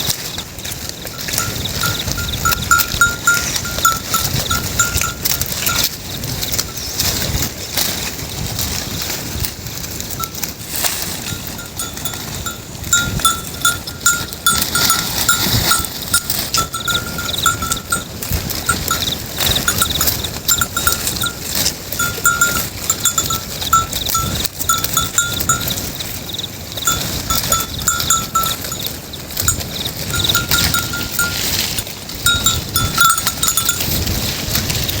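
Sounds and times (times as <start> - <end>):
goat bells clinking: 0.0 - 35.0
steady rustling: 0.0 - 35.0.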